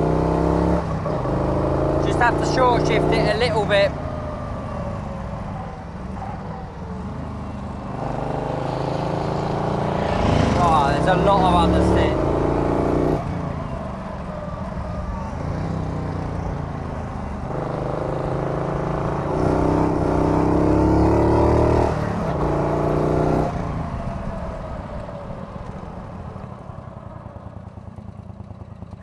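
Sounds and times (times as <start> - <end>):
engine revving hard: 0.0 - 3.9, 8.0 - 13.2, 17.5 - 23.6.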